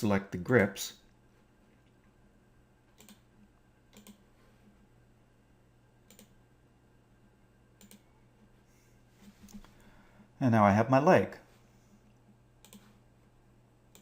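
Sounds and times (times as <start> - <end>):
computer mouse clicks: 3.0 - 3.3, 3.9 - 4.2, 6.1 - 6.4, 7.8 - 8.1, 12.6 - 12.9.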